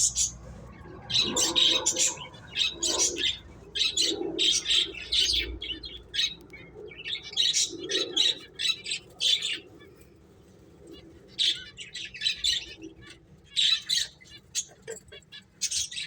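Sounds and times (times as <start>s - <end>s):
finches chirping: 0.0s - 10.0s.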